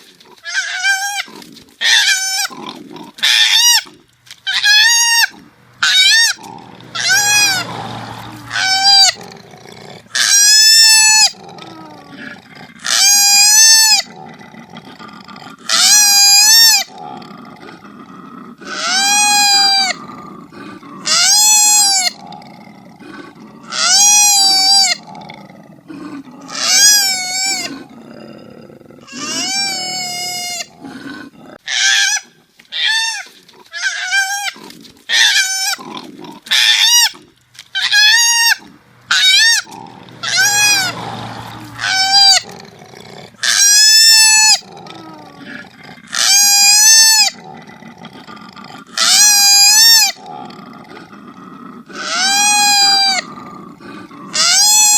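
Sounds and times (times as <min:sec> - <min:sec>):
koala squealing cries: 0:00.5 - 0:02.5, 0:03.2 - 0:03.9, 0:04.5 - 0:06.4, 0:07.0 - 0:07.7, 0:08.4 - 0:09.2, 0:10.2 - 0:11.4, 0:12.9 - 0:14.1, 0:15.7 - 0:16.9, 0:18.7 - 0:20.0, 0:21.1 - 0:22.2, 0:23.7 - 0:25.0, 0:26.5 - 0:27.7, 0:29.1 - 0:30.7, 0:31.7 - 0:35.8, 0:36.5 - 0:37.2, 0:37.8 - 0:41.0, 0:41.7 - 0:42.5, 0:43.4 - 0:44.6, 0:46.2 - 0:47.4, 0:49.0 - 0:50.2, 0:52.0 - 0:53.3, 0:54.4 - 0:54.9.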